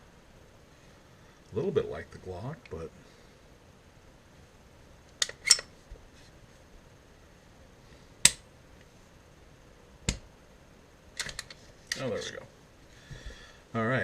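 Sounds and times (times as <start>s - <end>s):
pistol slide metallic clicks: 5.2s - 5.7s.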